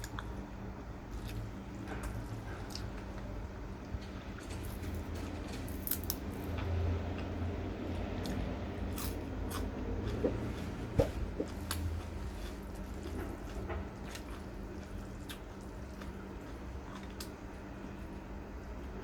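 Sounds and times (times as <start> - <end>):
steady low hum: 0.0 - 19.0
person eating: 4.4 - 17.7.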